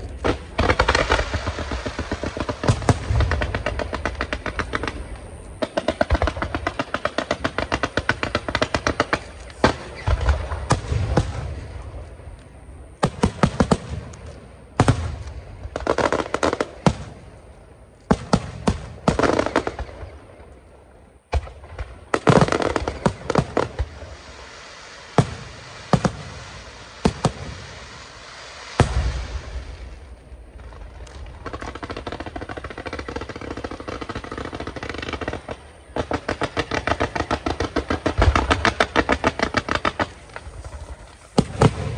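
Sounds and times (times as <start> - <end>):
fireworks bangs and crackling: 0.0 - 41.9
heavy firework boom: 40.4 - 41.9.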